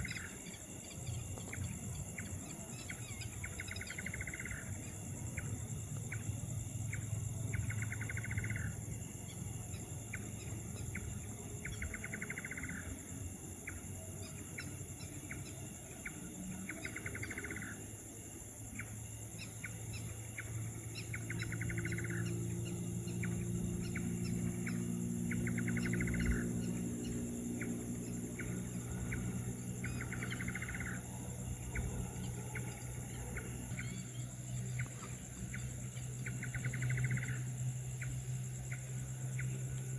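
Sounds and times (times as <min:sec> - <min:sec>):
low hum: 0:00.0 - 0:39.9.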